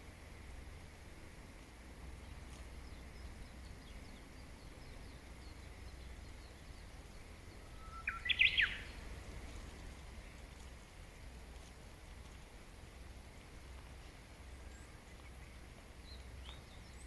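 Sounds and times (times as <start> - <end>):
low background hum: 0.0 - 17.0
wild birdsong: 1.4 - 17.0
bird rapid notes nearby: 7.6 - 9.0.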